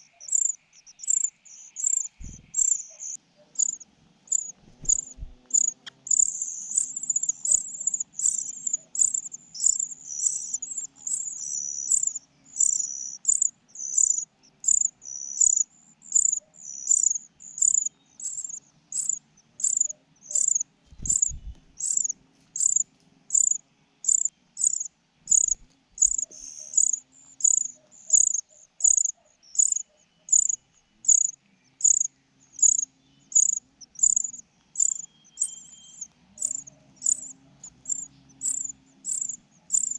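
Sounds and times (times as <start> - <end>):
short high-pitched chirps: 33.4 - 37.3.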